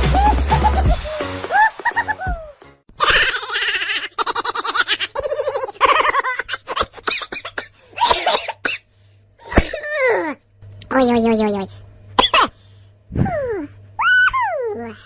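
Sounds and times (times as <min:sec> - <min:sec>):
person laughing hard: 0:00.0 - 0:07.1.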